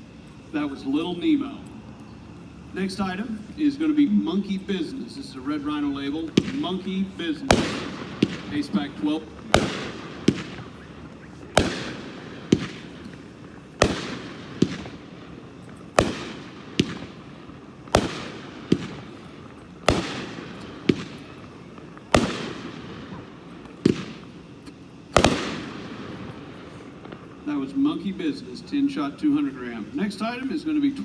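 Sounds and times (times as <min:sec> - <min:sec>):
firework bangs and cracks: 0:04.5 - 0:28.4.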